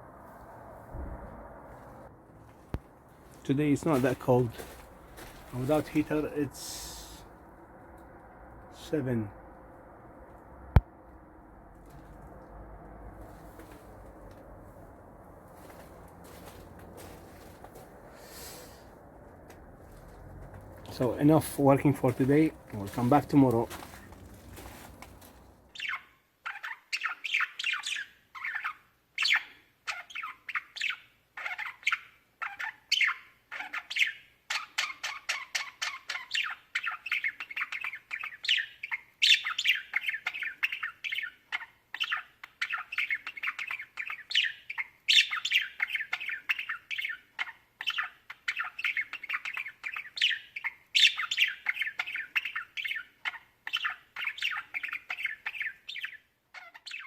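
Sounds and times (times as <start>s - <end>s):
small birds chattering: 3.3s - 7.3s, 20.9s - 57.0s.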